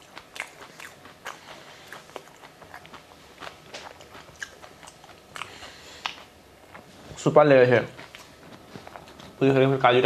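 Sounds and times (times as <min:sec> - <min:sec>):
chewing with wet mouth clicks: 0:00.0 - 0:06.9.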